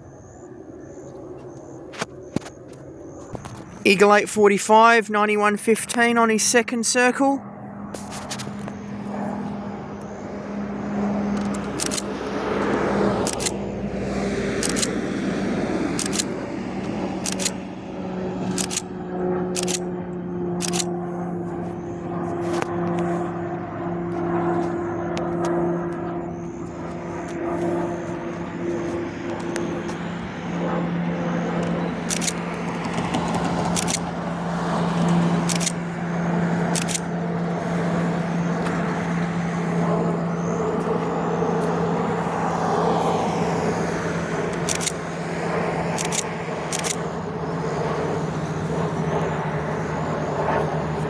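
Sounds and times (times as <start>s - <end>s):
propeller plane drone: 0.0s - 51.0s
camera shutter clicks: 11.4s - 12.1s, 13.2s - 13.6s, 14.6s - 15.0s, 16.0s - 16.3s, 17.2s - 17.6s, 18.6s - 18.9s, 19.6s - 19.8s, 20.6s - 20.9s, 32.0s - 32.4s, 33.7s - 34.0s, 35.4s - 35.8s, 36.7s - 37.0s, 44.5s - 45.0s, 45.9s - 47.0s.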